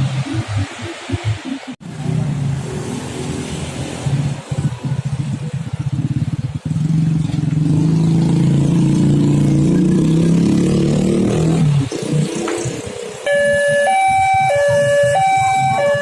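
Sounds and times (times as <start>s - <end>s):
busy traffic: 0.0s - 16.0s.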